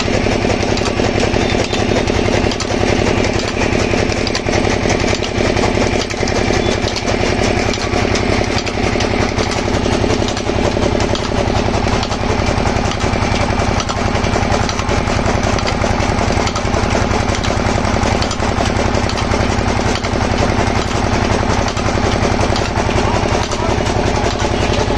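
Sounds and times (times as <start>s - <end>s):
engine chugging: 0.0s - 24.9s.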